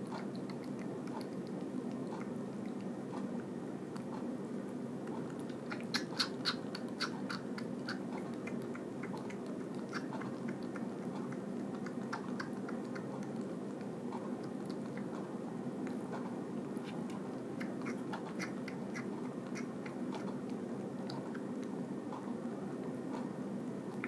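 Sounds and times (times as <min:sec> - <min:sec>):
steady low hum: 0:00.0 - 0:24.0
kitten suckling from a bottle: 0:00.1 - 0:22.3.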